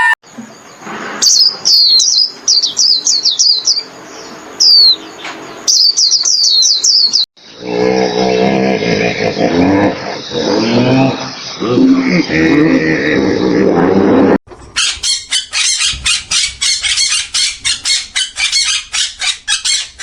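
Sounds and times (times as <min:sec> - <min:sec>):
bird chirping: 0:00.4 - 0:12.5, 0:14.6 - 0:20.0
low pitched animal call: 0:07.5 - 0:20.0.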